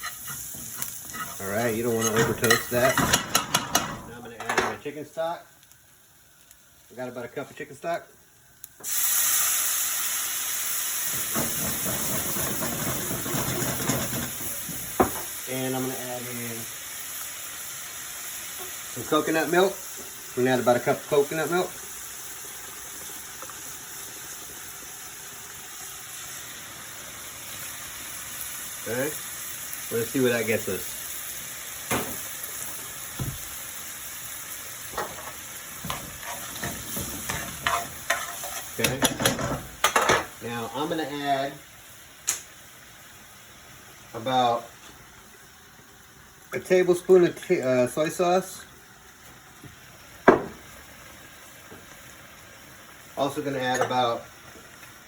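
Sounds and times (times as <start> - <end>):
spoon scraping and knocking on pan: 0.0 - 4.8, 11.2 - 15.3, 34.9 - 40.3, 50.2 - 50.7
crackling sizzle: 0.0 - 55.0
steam hiss and sizzle: 0.0 - 55.0
stock pouring into hot pan: 6.0 - 55.0.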